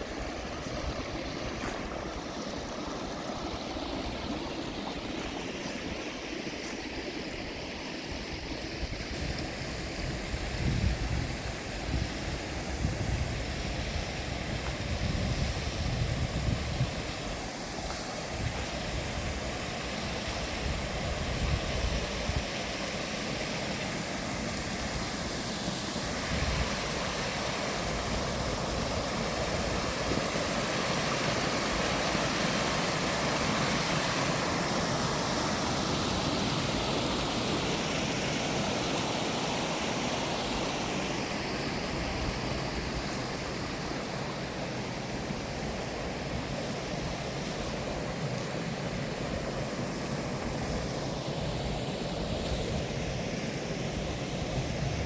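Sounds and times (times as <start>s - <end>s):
flowing water rushing: 0.0s - 55.0s
wind buffeting microphone: 9.1s - 17.2s.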